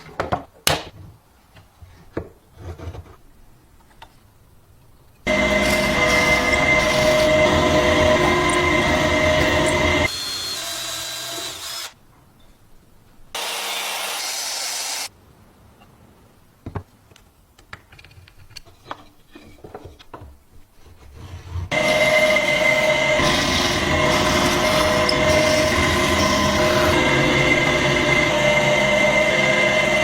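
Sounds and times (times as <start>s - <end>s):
power tool running: 5.3s - 12.0s, 13.4s - 15.1s, 21.7s - 30.0s.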